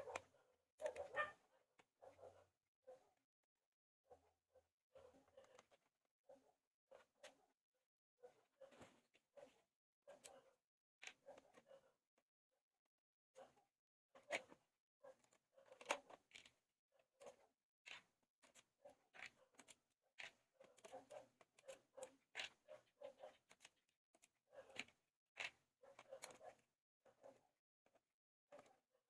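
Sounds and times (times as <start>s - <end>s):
small tools clicking on laptop: 15.2s - 26.6s.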